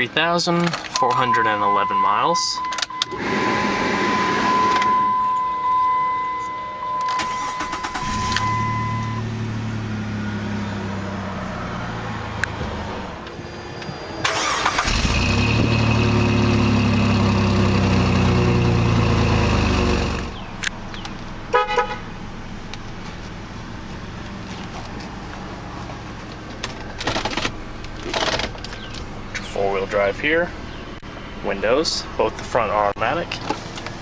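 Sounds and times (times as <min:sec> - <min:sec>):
car engine idling: 0:01.2 - 0:13.2, 0:14.3 - 0:32.6
loud steady drone: 0:01.3 - 0:07.3.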